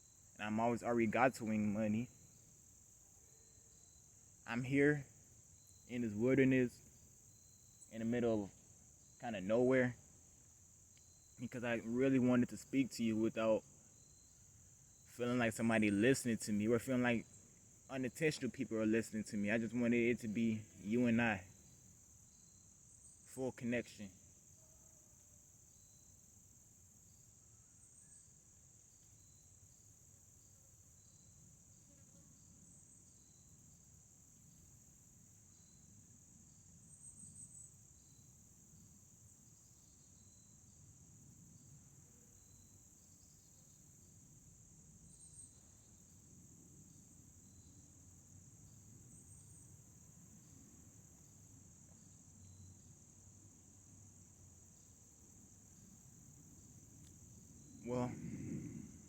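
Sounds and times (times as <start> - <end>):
high-pitched insect chorus: 0.0 - 59.0
short insect chirps: 0.0 - 59.0
low outdoor rumble: 57.6 - 59.0.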